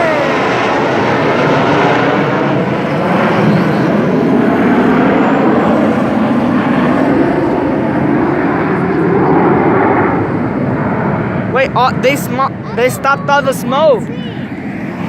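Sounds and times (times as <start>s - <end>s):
aircraft engine rush: 0.0s - 15.0s.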